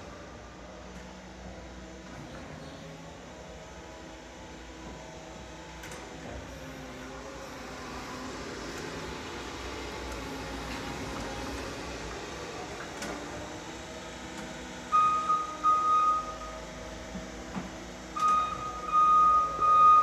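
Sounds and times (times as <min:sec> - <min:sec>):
steady background noise: 0:00.0 - 0:20.0
forklift warning beeps: 0:14.9 - 0:16.6, 0:18.2 - 0:20.0.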